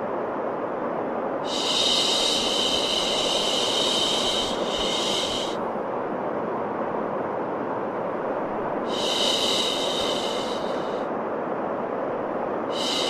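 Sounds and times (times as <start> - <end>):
steady white noise: 0.0 - 13.0
bright high hiss: 1.4 - 5.6, 8.8 - 11.1, 12.7 - 13.0.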